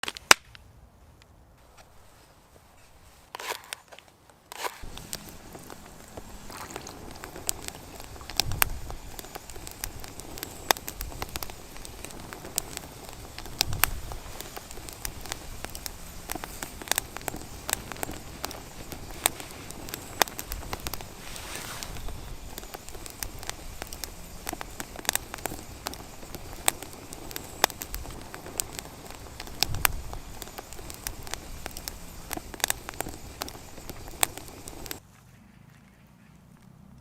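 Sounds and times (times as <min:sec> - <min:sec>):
campfire crackling and popping: 0:00.0 - 0:00.6, 0:01.6 - 0:35.0
brief rustle: 0:20.4 - 0:22.6.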